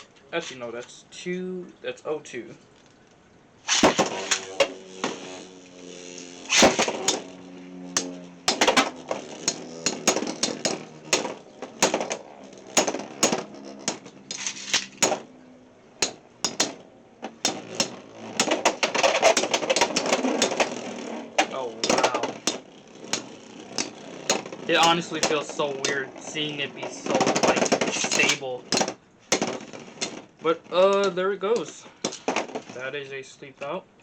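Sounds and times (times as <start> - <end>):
spinning tops whirring: 3.6 - 32.8
spinning tops clacking together: 3.7 - 15.3, 16.0 - 30.3.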